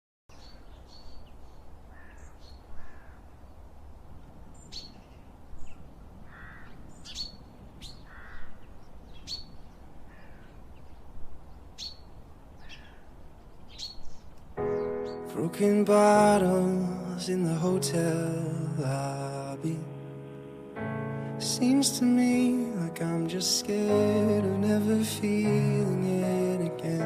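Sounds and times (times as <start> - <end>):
birds calling: 0.3 - 3.6, 4.6 - 20.1.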